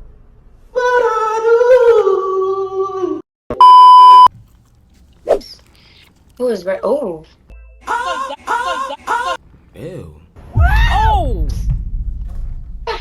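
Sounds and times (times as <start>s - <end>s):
loud steady beep: 3.6s - 4.3s.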